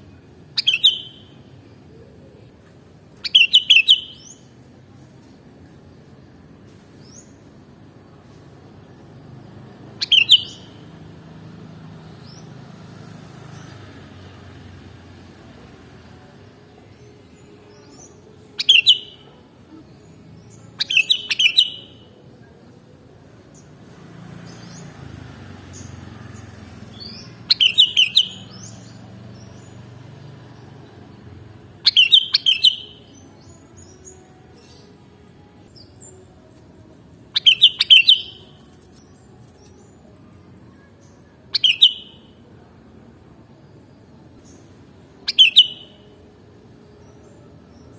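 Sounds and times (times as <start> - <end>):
bird chirping calls: 0.5 - 1.3, 3.2 - 4.5, 9.9 - 10.9, 17.6 - 22.2, 24.4 - 35.1, 37.3 - 39.8, 40.9 - 42.5, 45.3 - 46.1.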